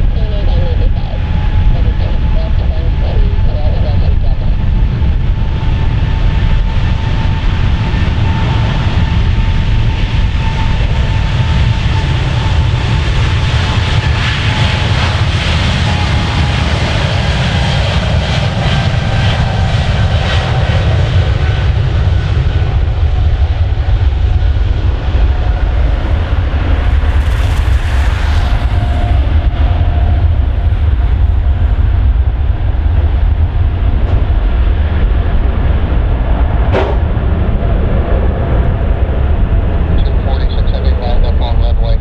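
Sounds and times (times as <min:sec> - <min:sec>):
jet engines roaring: 0:00.0 - 0:42.0.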